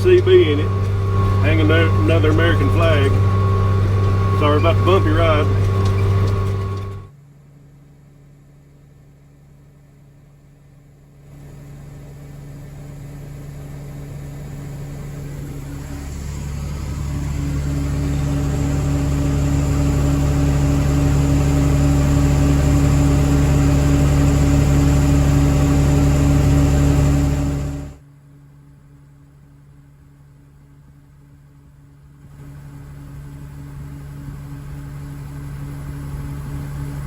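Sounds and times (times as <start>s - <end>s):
tractor engine running: 0.0s - 7.1s, 11.3s - 28.0s, 32.1s - 37.0s.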